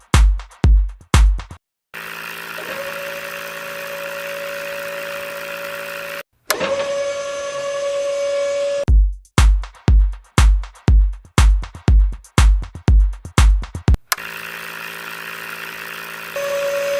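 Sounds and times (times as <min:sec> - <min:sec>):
electric motor whining: 0:02.0 - 0:08.9, 0:14.0 - 0:16.9.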